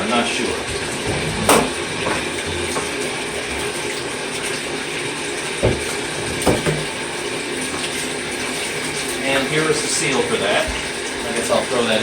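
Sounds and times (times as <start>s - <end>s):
tap water running into tub: 0.0s - 12.0s
short knocks in tub: 1.1s - 2.9s, 5.6s - 6.9s.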